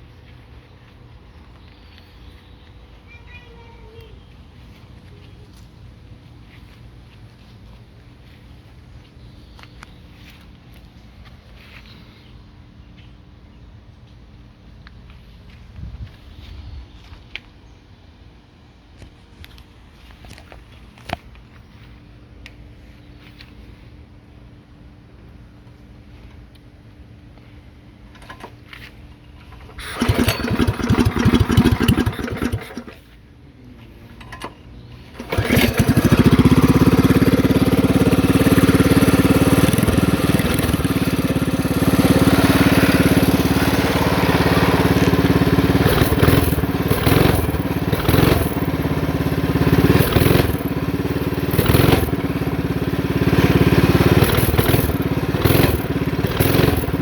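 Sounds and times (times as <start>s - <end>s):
engine throttle blips: 29.4s - 33.2s, 33.8s - 57.0s
mini bike engine running: 29.5s - 33.1s, 35.1s - 57.0s.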